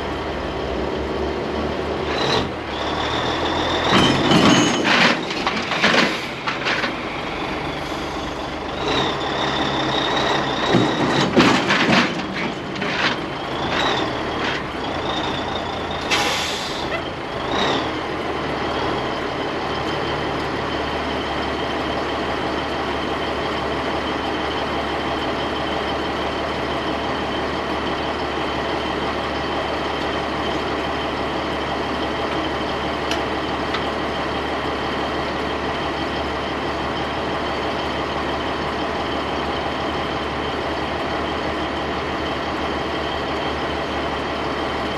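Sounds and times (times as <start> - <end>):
diesel truck engine idling: 6.1 - 11.2.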